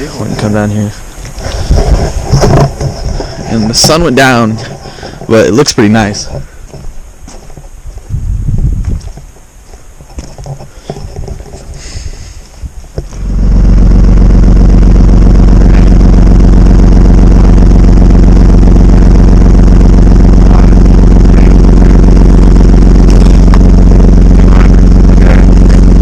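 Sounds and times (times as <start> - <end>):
vehicle engine idling: 13.0 - 26.0.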